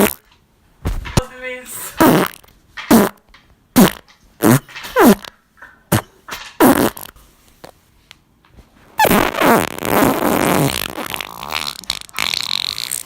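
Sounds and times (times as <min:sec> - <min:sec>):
farts: 0:00.0 - 0:00.3, 0:02.0 - 0:07.2, 0:09.0 - 0:13.0.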